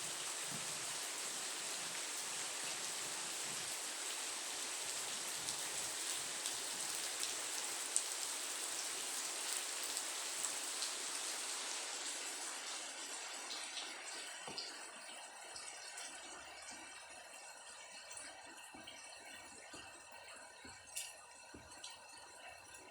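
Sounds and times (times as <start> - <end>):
rain falling: 0.0 - 14.3
raindrops ticking on surfaces: 0.0 - 16.7.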